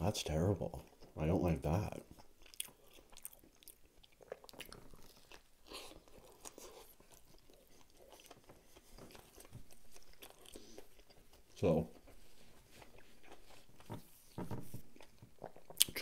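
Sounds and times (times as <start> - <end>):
chewing wet mouth sounds: 2.0 - 11.6.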